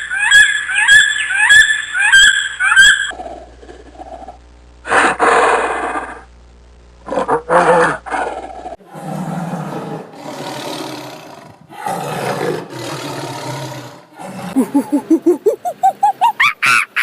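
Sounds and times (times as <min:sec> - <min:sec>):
large animal roaring: 0:07.1 - 0:14.8.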